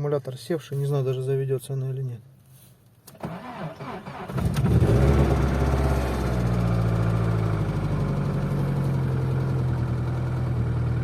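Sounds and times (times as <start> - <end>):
car engine idling: 5.2 - 11.0.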